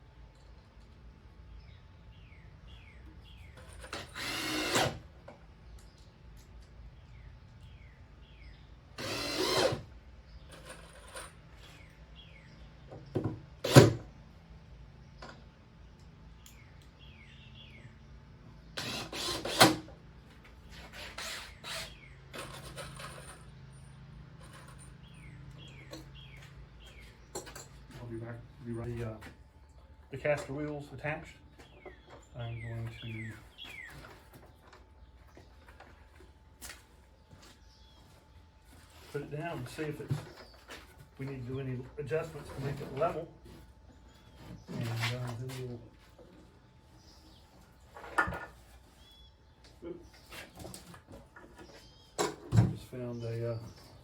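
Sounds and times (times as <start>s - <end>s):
power drill driving screws: 3.8s - 5.0s, 9.0s - 9.9s, 18.8s - 19.9s, 20.8s - 22.0s.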